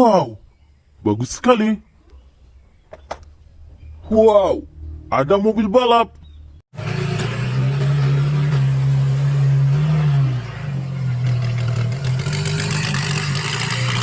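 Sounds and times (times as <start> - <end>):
racing car engine at high revs: 6.8 - 14.0.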